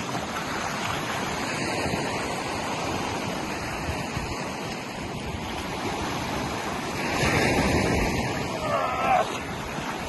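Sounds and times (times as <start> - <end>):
sea: 0.0 - 10.0
wind: 0.0 - 10.0
wind buffeting microphone: 0.0 - 10.0.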